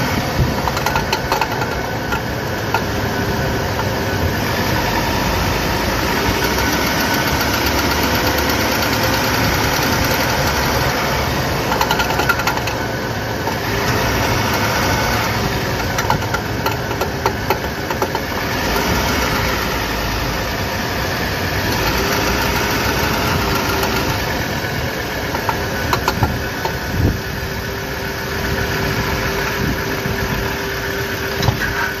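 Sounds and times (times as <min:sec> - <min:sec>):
vehicle engine running: 0:00.0 - 0:32.0
driveshaft clunks and knocks: 0:00.1 - 0:04.1, 0:11.5 - 0:19.0, 0:25.3 - 0:27.2.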